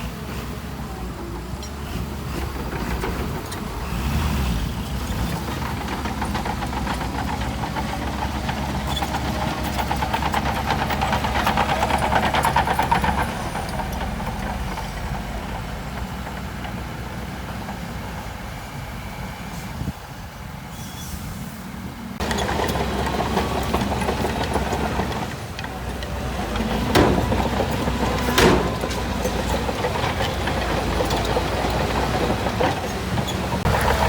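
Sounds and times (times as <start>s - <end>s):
diesel engine running: 0.0s - 20.6s, 21.3s - 34.0s
sharp knocks: 26.7s - 29.4s.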